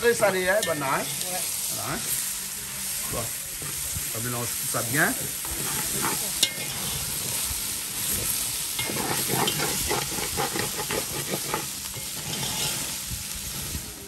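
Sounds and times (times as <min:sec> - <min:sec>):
shrimp sizzling in a pot: 0:00.0 - 0:14.0
spoon scraping pot: 0:05.4 - 0:06.8, 0:08.8 - 0:12.9.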